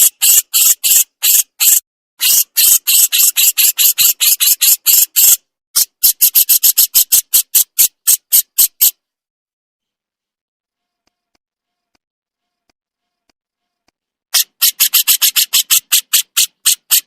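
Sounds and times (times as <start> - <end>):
bird harsh scolding call: 0.0 - 9.0, 14.4 - 17.0.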